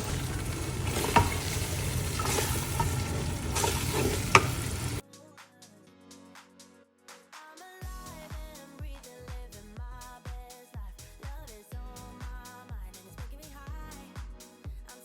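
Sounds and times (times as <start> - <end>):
food sizzling in a pot: 0.0 - 5.0
spoon knocking on pot: 0.0 - 5.0.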